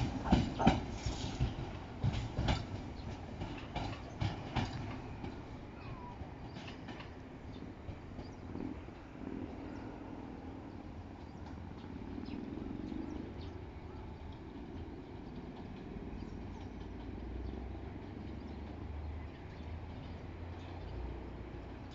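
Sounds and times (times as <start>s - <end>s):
electric train rumbling: 0.0s - 21.9s.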